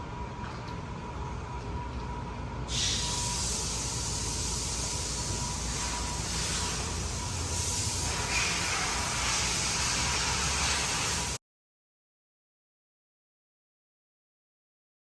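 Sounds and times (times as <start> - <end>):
loud even hiss: 2.7 - 11.4.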